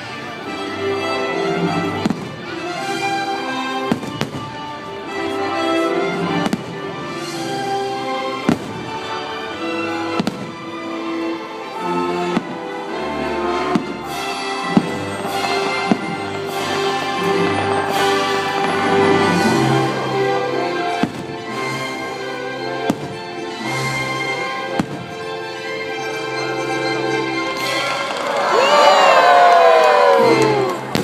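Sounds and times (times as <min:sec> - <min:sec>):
orchestral soundtrack: 0:00.0 - 0:31.0
firework bangs: 0:02.0 - 0:02.5, 0:03.9 - 0:04.7, 0:06.2 - 0:06.8, 0:08.4 - 0:08.9, 0:10.2 - 0:10.6, 0:13.7 - 0:21.7, 0:22.9 - 0:23.4, 0:24.7 - 0:25.3, 0:30.6 - 0:31.0.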